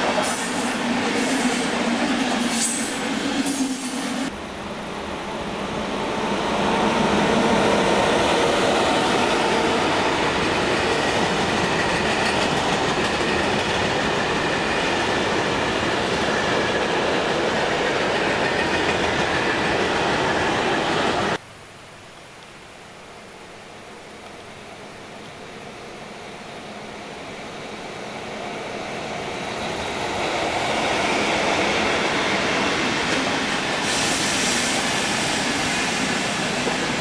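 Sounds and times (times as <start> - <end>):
quiet hiss: 21.4 - 27.2.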